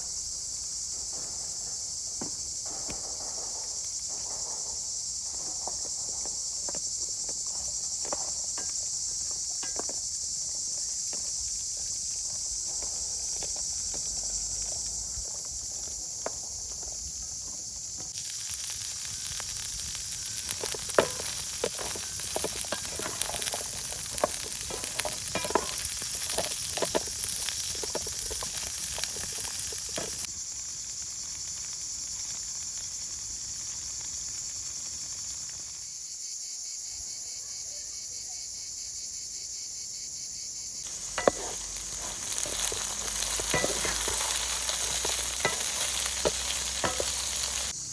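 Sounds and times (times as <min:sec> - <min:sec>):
food sizzling in a frying pan: 0:00.0 - 0:36.2, 0:40.8 - 0:47.9
sharp crackles: 0:12.2 - 0:35.9, 0:40.8 - 0:47.9.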